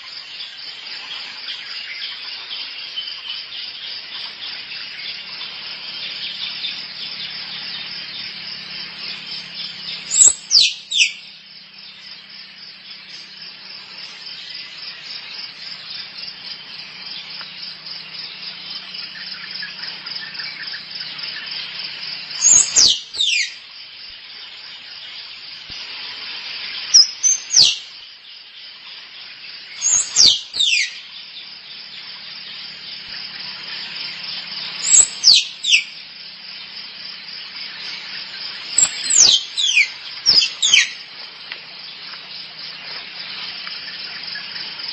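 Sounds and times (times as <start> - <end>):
buzzing insect chorus: 0.0 - 44.9
squirrel chirping: 10.0 - 11.2, 22.4 - 23.5, 29.8 - 31.0, 34.8 - 35.9, 38.7 - 41.0.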